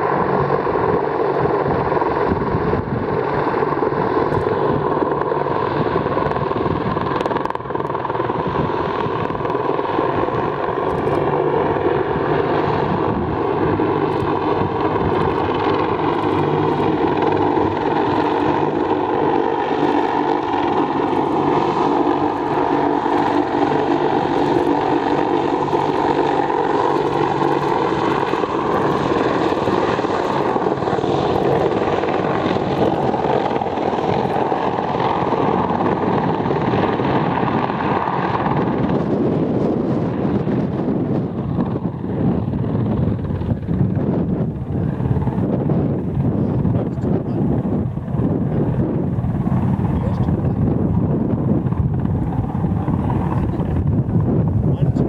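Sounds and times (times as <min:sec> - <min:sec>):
helicopter rotor and engine noise: 0:00.0 - 0:55.0.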